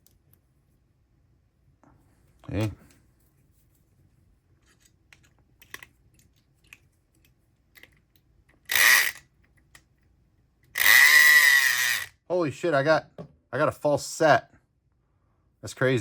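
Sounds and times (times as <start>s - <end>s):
electric lock pick gun buzz: 8.7s - 9.2s, 10.8s - 12.1s.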